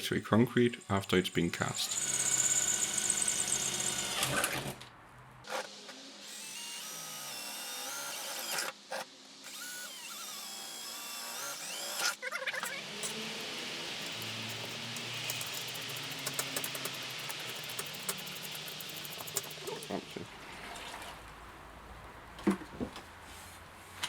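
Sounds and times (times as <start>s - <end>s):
electric drill whining: 1.8s - 4.7s, 6.2s - 8.7s, 9.4s - 19.8s.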